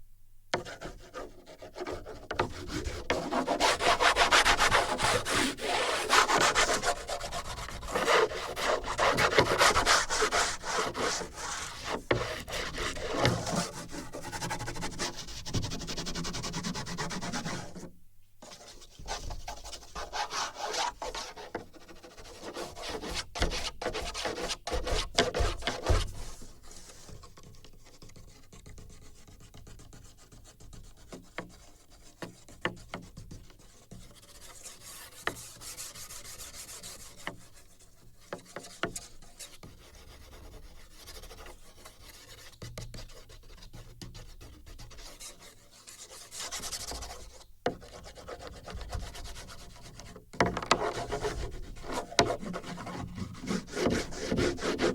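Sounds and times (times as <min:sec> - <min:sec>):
drawing tool scratching on wood: 0:00.5 - 0:18.8, 0:19.4 - 0:54.9.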